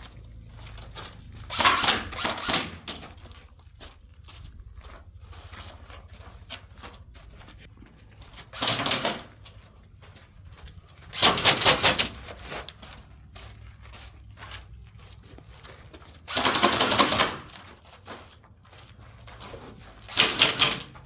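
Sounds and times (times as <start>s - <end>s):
airsoft rifle rapid shots: 1.5s - 3.0s, 8.6s - 9.3s, 11.1s - 12.2s, 16.3s - 17.5s, 20.1s - 21.0s.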